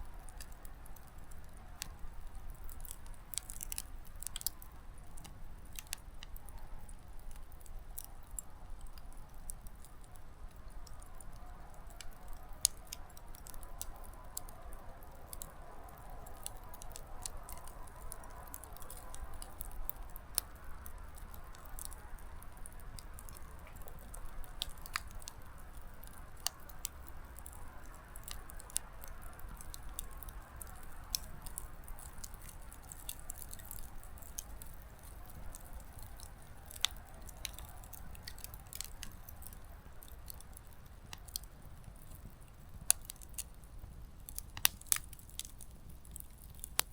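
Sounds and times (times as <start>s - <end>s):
campfire crackling and popping: 0.0s - 46.9s
soft rushing of flame: 0.0s - 46.9s.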